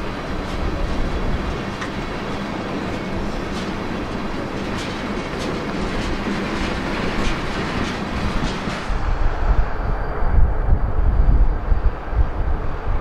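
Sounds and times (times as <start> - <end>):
wheels clicking over rail joints: 0.0 - 9.0
train low rumble: 0.0 - 13.0.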